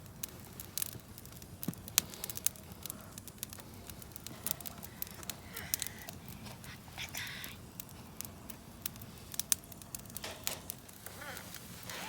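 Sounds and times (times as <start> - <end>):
fire popping sharply: 0.0 - 12.0
wood fire crackling: 0.0 - 12.0.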